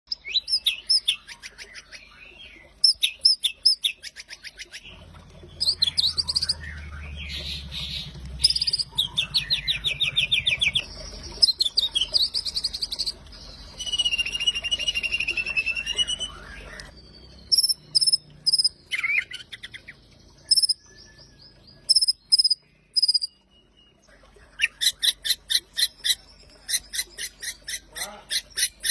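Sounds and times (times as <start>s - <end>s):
songbird whistling and trilling: 5.6s - 7.4s, 8.0s - 24.0s.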